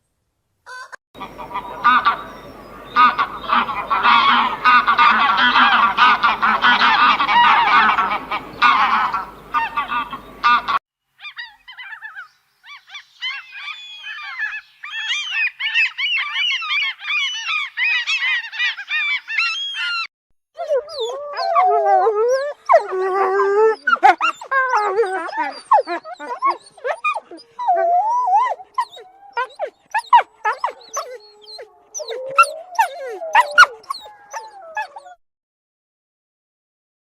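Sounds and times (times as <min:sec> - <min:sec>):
background noise: 0:00.0 - 0:20.0, 0:20.6 - 0:35.1
geese honking: 0:01.2 - 0:10.8
low wavering whining calls: 0:01.2 - 0:10.8.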